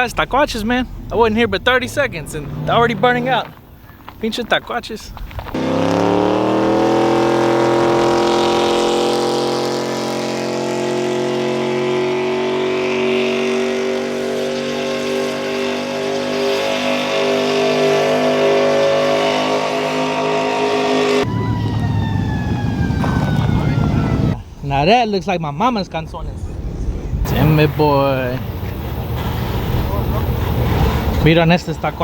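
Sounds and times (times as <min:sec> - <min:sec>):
truck engine revving: 0:00.0 - 0:03.8, 0:05.5 - 0:24.4, 0:27.2 - 0:32.0
tyres squealing on pavement: 0:00.0 - 0:05.6, 0:21.3 - 0:24.4, 0:27.3 - 0:32.0.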